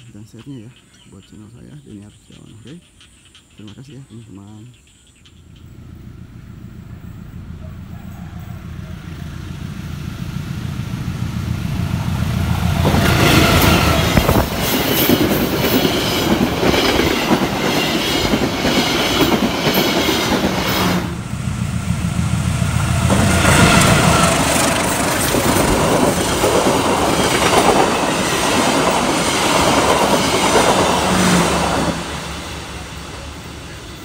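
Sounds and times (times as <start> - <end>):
locomotive engine hum: 4.8 - 34.0
train rushing past: 5.5 - 34.0
wheels clattering over rails: 9.6 - 22.2, 22.8 - 34.0.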